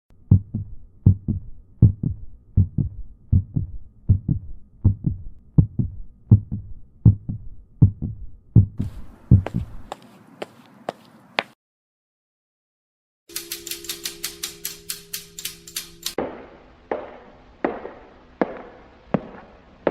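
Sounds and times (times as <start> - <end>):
heartbeat thumping: 0.3 - 9.9
hiss with crackling clicks: 13.3 - 16.2.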